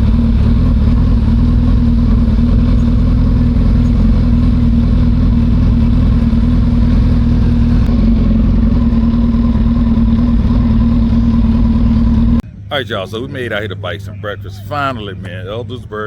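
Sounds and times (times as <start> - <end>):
motorcycle engine idling: 0.0 - 12.7.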